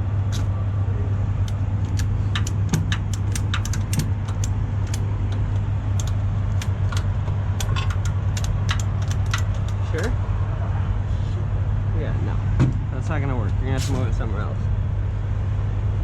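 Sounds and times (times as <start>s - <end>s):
heavy diesel engine running: 0.0s - 16.0s
metallic clicks and clinks: 1.5s - 10.1s.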